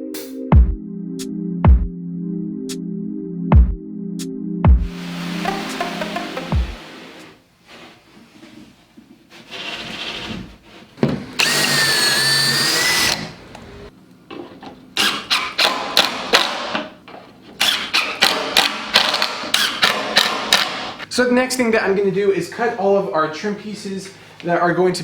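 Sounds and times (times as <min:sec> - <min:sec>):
cordless drill whine: 0:11.4 - 0:13.8.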